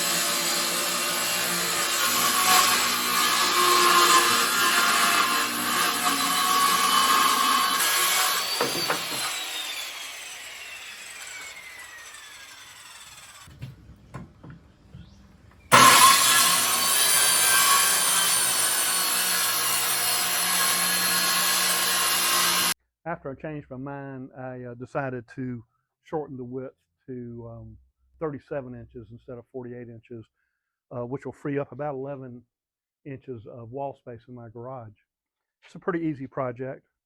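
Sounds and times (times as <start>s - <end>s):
power saw cutting wood: 0.0s - 13.7s, 15.7s - 22.8s
saw blade spinning down whine: 8.3s - 13.5s
light knocks: 13.5s - 15.2s.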